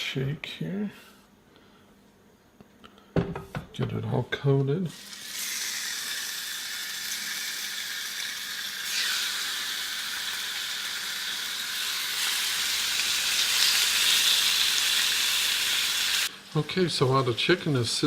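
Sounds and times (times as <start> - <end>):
chicken frying in oil: 5.0 - 18.0.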